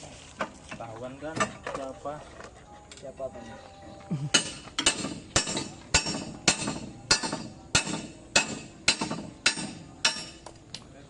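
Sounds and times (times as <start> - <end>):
hammer striking steel: 4.3 - 10.6.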